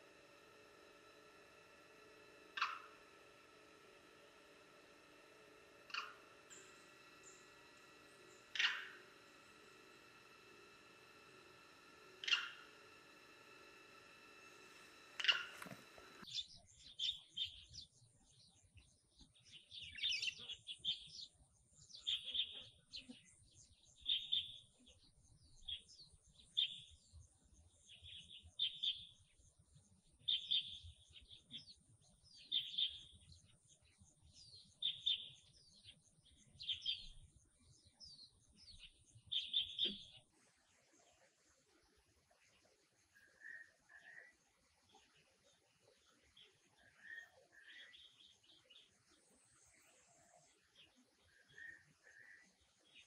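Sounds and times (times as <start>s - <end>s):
faint high-pitched whine: 0.0s - 17.8s
bird chirping: 0.0s - 40.4s, 42.3s - 53.0s.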